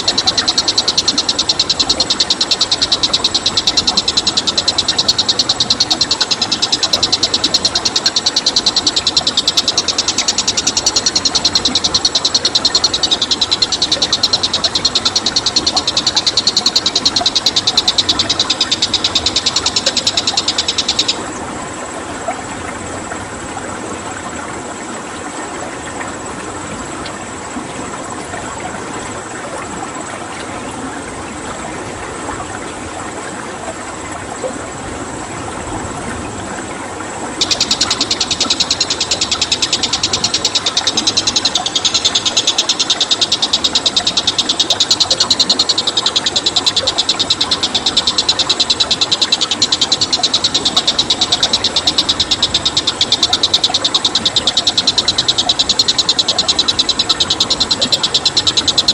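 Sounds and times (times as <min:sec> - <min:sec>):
rapidly pulsing animal trill: 0:00.0 - 0:21.8, 0:37.4 - 0:58.9
flowing water: 0:00.0 - 0:58.9.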